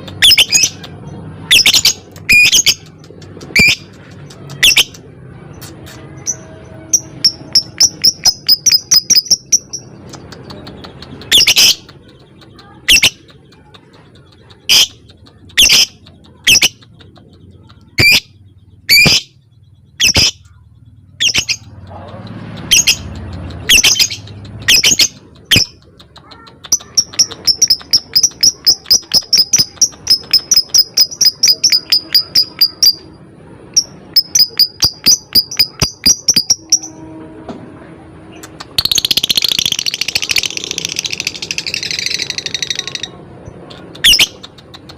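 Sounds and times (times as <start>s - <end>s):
lovebird rapid ticking trills: 6.2s - 33.1s, 33.8s - 36.9s.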